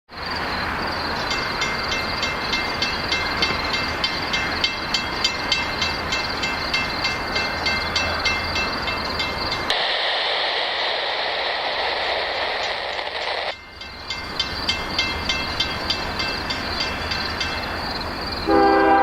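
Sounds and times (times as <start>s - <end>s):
train rumbling on rails: 0.1s - 19.0s
ringing rail clicks: 1.2s - 9.7s, 12.6s - 18.1s.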